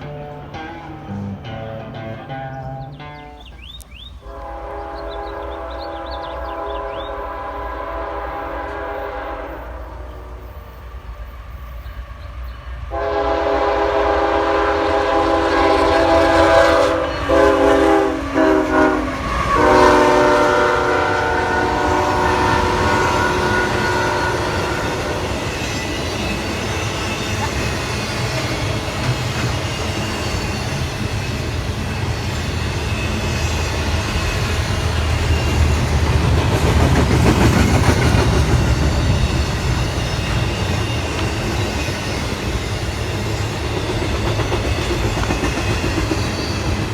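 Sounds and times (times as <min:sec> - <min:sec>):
train rumbling past: 0:00.0 - 0:46.9
locomotive air horn blasts: 0:04.2 - 0:10.6, 0:12.9 - 0:25.5
wheels clicking over rail joints: 0:23.8 - 0:46.9.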